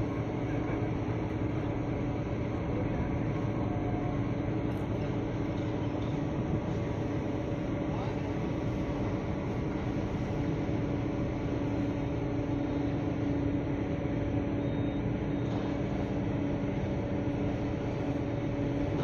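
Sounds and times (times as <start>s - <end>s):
ship engine drone: 0.0s - 19.0s.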